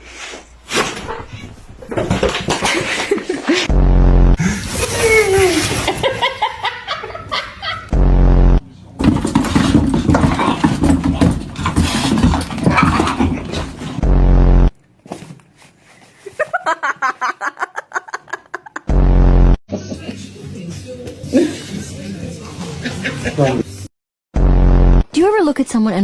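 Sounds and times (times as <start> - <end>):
loud low buzzing effect: 3.7 - 4.6, 7.9 - 8.7, 14.0 - 14.8, 18.9 - 19.6, 24.4 - 25.1
cartoon laughing: 4.8 - 7.9.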